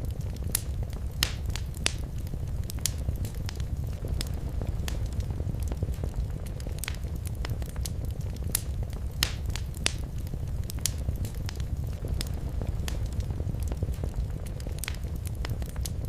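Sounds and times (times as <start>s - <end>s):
fire rumbling: 0.0s - 16.0s
wood fire popping and snapping: 0.0s - 16.0s.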